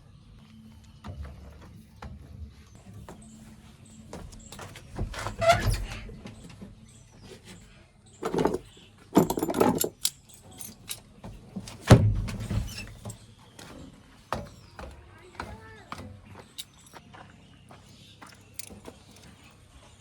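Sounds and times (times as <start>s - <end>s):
loud clattering and rattling: 8.2s - 10.0s.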